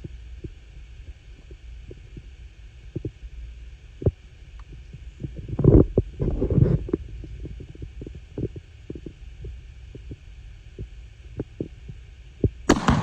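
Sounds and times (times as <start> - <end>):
explosion crack and rolling boom: 12.7 - 13.0
rifle bang: 12.7 - 13.0.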